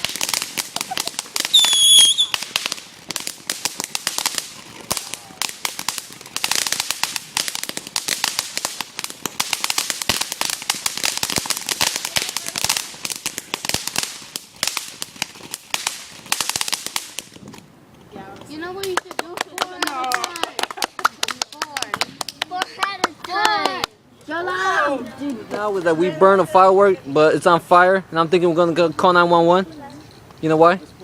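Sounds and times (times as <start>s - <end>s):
fireworks crackling: 0.0s - 31.0s
shrill firework whistle: 1.5s - 2.4s.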